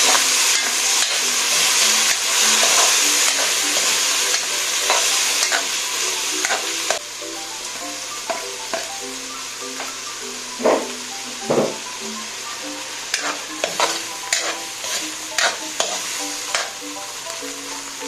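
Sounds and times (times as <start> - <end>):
spatula scraping a pan: 0.0 - 7.0, 13.1 - 16.8
filling sizzling in butter: 0.0 - 18.0.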